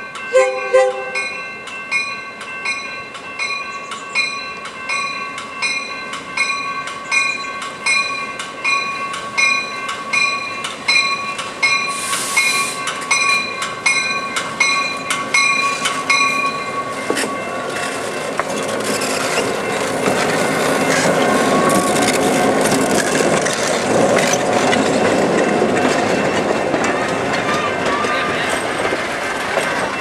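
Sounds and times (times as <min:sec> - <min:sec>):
bell clanging: 0:00.0 - 0:22.2
passenger coaches rolling past: 0:00.0 - 0:30.0
wheels clicking over rail joints: 0:01.4 - 0:30.0
air hiss burst: 0:11.9 - 0:12.9.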